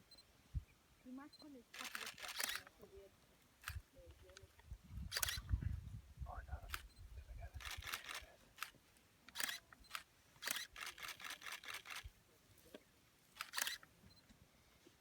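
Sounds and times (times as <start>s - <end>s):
camera shutters clicking: 1.8s - 2.8s, 5.1s - 5.5s, 7.6s - 12.1s, 13.4s - 13.9s.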